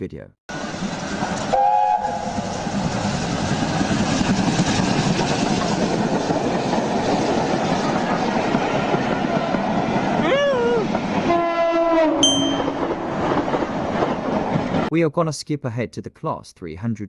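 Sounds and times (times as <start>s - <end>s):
train rumble and rail clatter: 0.5s - 14.9s
two-note tone: 12.2s - 12.8s.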